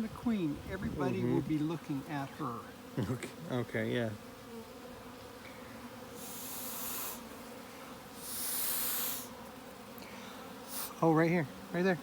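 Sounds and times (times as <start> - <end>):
bees humming: 0.0 - 12.0
breathy hisses: 5.4 - 7.3, 8.2 - 9.4.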